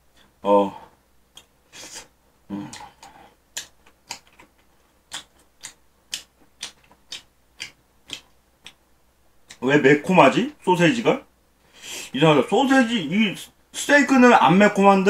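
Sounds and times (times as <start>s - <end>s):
man chewing: 1.3s - 8.8s.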